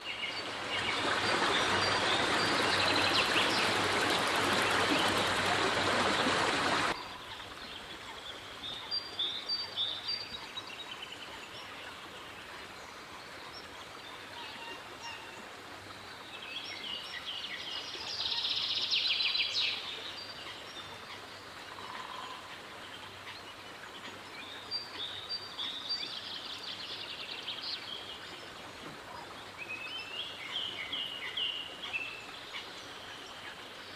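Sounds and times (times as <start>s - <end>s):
birds chirping: 0.0s - 7.4s.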